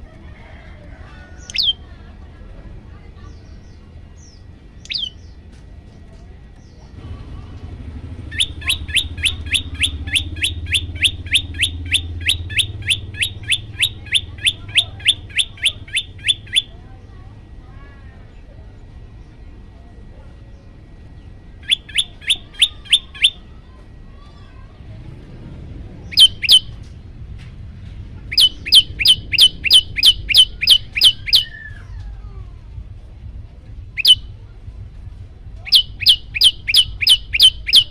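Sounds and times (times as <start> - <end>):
songbird calling rising notes: 1.4 - 1.8, 3.4 - 5.4, 8.2 - 16.8, 21.2 - 23.4, 26.0 - 26.8, 28.3 - 32.4, 33.9 - 34.3, 35.6 - 37.9
low rumble: 23.4 - 37.0.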